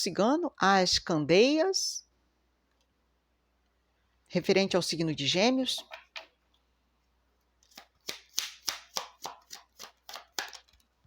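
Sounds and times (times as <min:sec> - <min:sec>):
cards being shuffled: 0:07.6 - 0:11.0.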